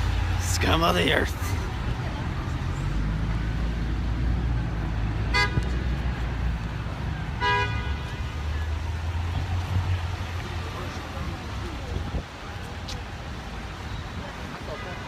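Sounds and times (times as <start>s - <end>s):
city traffic rumble: 0.0s - 15.0s
car horn toots: 5.3s - 5.6s, 7.4s - 8.2s.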